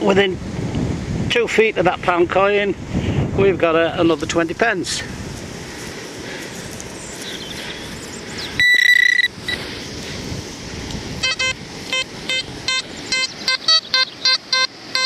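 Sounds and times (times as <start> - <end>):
metal detector high tone: 8.6 - 9.6, 11.2 - 15.0
metal detector short beeps: 8.6 - 9.6, 11.2 - 15.0.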